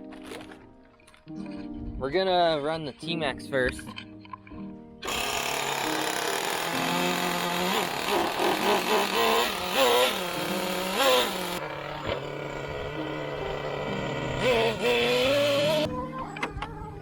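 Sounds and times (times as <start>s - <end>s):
rc truck nitro engine revving: 5.0s - 15.9s.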